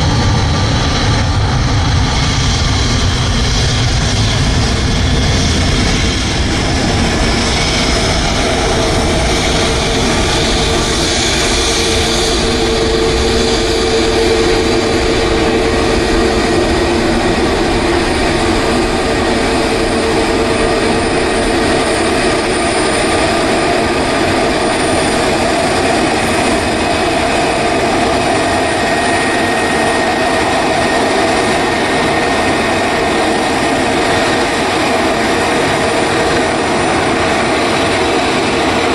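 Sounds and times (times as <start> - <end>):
jet engines roaring: 0.0 - 38.9
faint high whine: 7.2 - 30.0.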